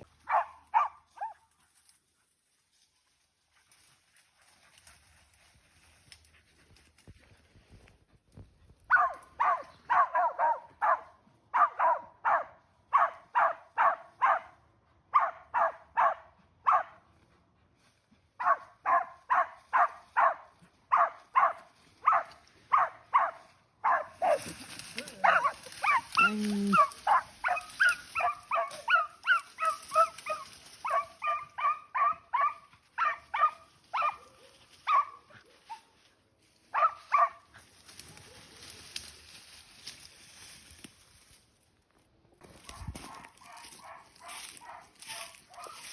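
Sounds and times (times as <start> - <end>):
dog barking: 0.2 - 1.5, 8.9 - 17.0, 18.4 - 35.9, 36.7 - 37.4, 42.6 - 45.9.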